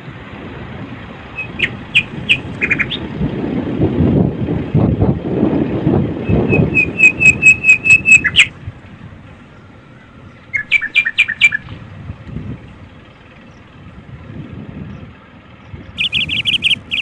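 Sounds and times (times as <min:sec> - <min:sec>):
low rumble: 0:00.0 - 0:17.0
bird whistling call: 0:01.4 - 0:03.0, 0:06.3 - 0:08.5, 0:10.5 - 0:11.7, 0:16.0 - 0:17.0.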